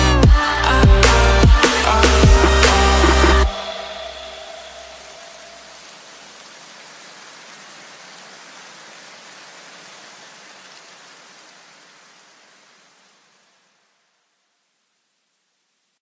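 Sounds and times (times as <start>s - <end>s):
steady hiss: 0.4s - 16.0s.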